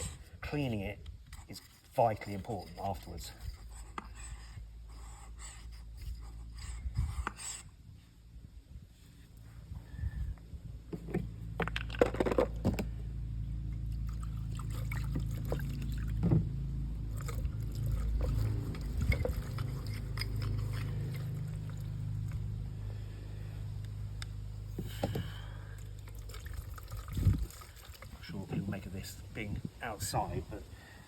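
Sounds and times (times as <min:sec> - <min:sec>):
steady low hum: 0:00.0 - 0:31.0
small parts clicking and scraping: 0:00.8 - 0:04.6, 0:17.1 - 0:22.4.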